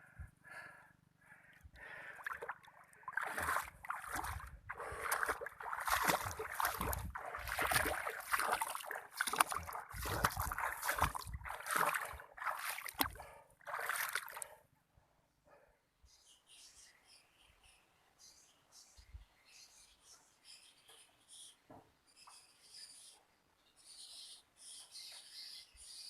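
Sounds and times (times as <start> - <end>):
water splashing and sloshing: 1.8 - 14.6.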